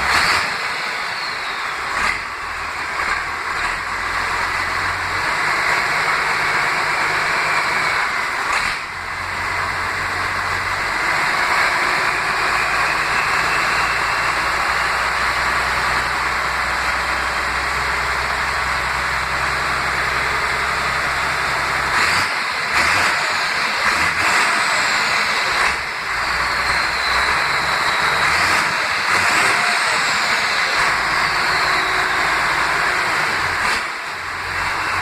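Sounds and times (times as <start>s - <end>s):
diesel engine rumble: 0.0s - 35.0s
thin falling whistles: 26.3s - 28.4s, 31.1s - 32.4s.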